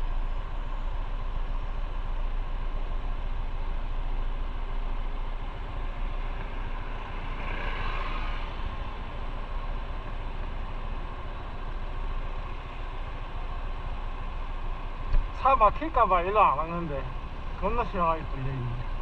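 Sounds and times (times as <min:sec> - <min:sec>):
wind and road noise: 0:00.0 - 0:19.0.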